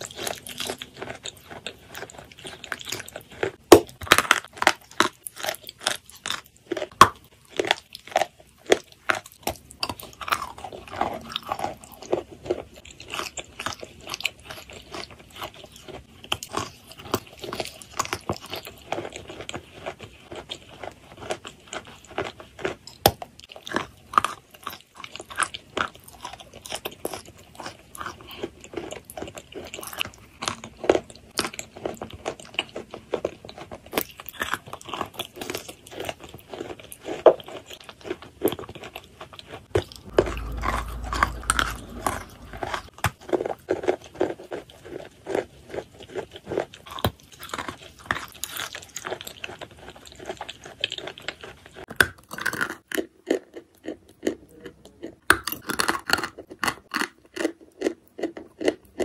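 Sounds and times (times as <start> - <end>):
low rumble: 39.7 - 43.0.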